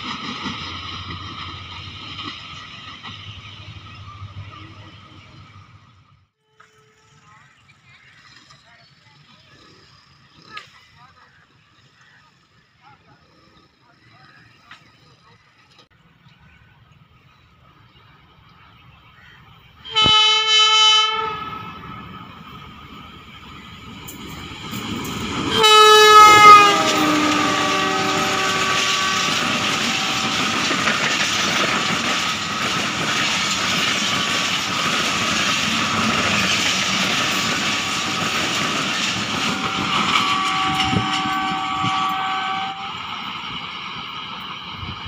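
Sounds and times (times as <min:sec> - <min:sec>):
train coaches rail clatter: 0:00.0 - 0:13.2, 0:22.0 - 0:45.0
locomotive horn: 0:19.8 - 0:22.0, 0:25.4 - 0:31.1, 0:39.3 - 0:43.2.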